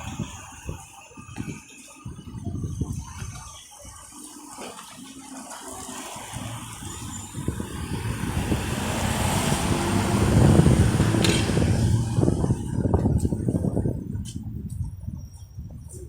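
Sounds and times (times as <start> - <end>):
vehicle engine and road noise: 5.6 - 15.9.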